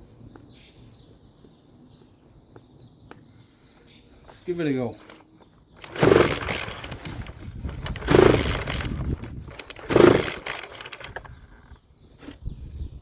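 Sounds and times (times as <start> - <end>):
engine turning over: 5.8 - 11.4
recoil pull-starter yanked: 5.8 - 11.4.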